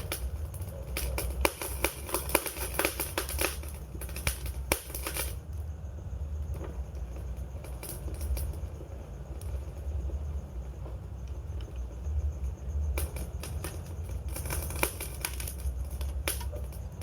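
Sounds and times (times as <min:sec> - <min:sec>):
campfire crackling and popping: 0:00.0 - 0:05.7, 0:13.0 - 0:17.0
low steady rumble: 0:00.0 - 0:17.0.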